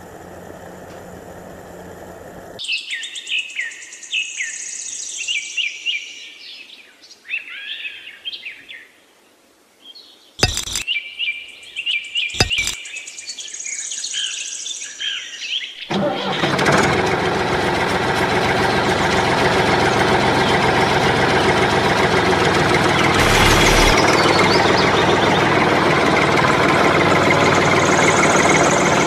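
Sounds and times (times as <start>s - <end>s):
small motor humming: 0.0s - 2.6s, 22.9s - 24.3s
birds chirping: 22.5s - 26.2s, 27.0s - 29.0s.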